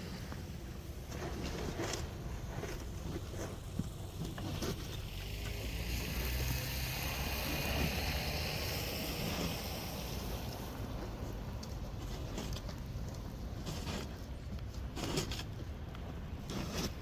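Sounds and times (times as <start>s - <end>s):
vehicle tyre hiss on snow: 0.0s - 12.3s
low wind rumble: 0.0s - 15.0s
low engine hum: 2.0s - 13.6s.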